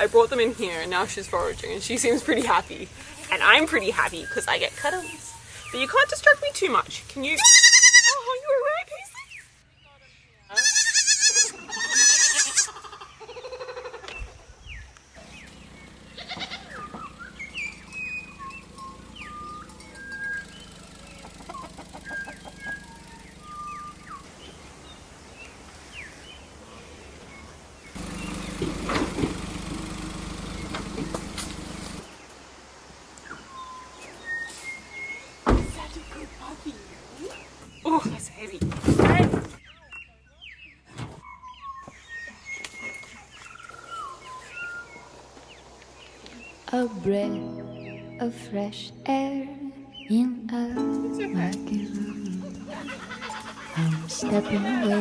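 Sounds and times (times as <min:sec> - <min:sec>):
birds whistling chirps: 0:00.0 - 0:06.8, 0:13.2 - 0:28.6, 0:33.2 - 0:38.2, 0:39.6 - 0:46.6, 0:49.6 - 0:55.0
bird warbling: 0:51.3 - 0:55.0.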